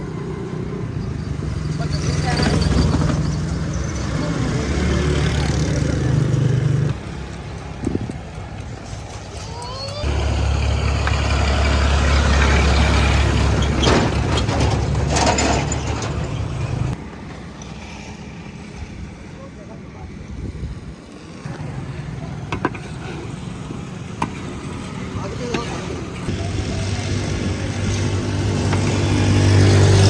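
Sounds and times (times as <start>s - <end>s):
vehicle engines running: 0.0s - 17.5s, 21.2s - 30.0s.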